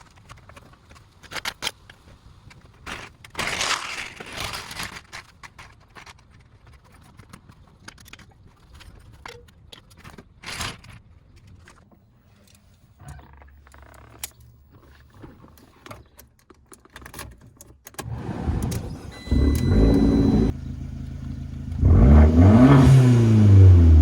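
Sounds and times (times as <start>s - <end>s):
car engine revving: 18.0s - 24.0s
car engine starting and idling: 18.0s - 24.0s.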